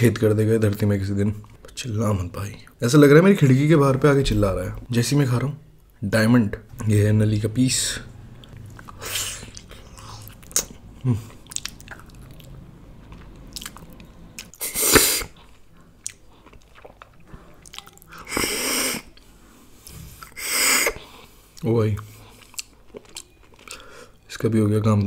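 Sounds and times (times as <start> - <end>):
person chewing meat: 8.4 - 14.6, 15.4 - 24.3
wet mouth clicks: 11.4 - 12.5.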